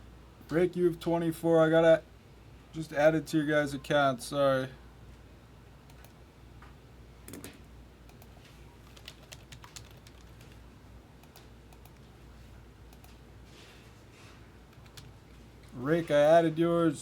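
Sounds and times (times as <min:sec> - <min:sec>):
typing on computer keyboard: 0:08.1 - 0:10.6, 0:14.7 - 0:15.1.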